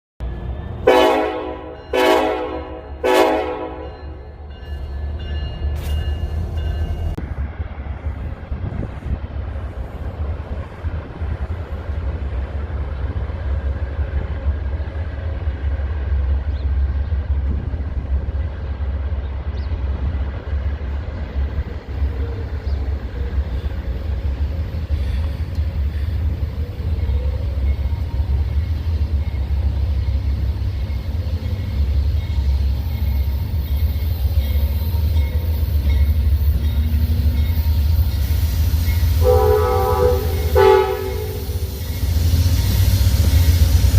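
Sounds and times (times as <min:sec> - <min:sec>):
diesel train rumble: 0:00.2 - 0:43.9
train hiss and rattle: 0:05.2 - 0:14.2, 0:20.8 - 0:43.9.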